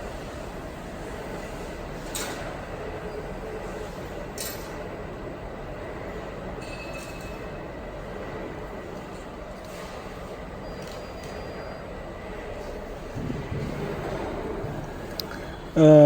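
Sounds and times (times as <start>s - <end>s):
machinery humming: 7.4s - 16.0s.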